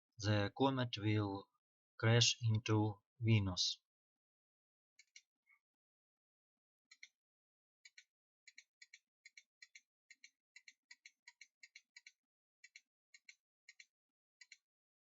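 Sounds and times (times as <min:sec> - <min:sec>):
computer mouse clicking: 0:07.8 - 0:14.6.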